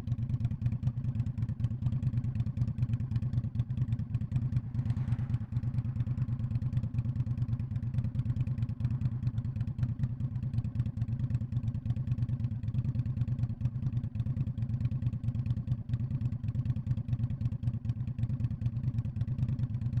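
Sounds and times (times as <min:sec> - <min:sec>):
motorcycle engine exhaust pulse: 0:02.4 - 0:11.4.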